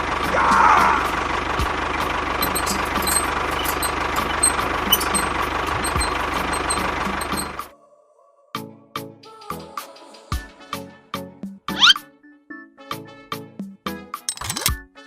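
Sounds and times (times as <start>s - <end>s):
tractor engine idling: 0.0s - 7.7s.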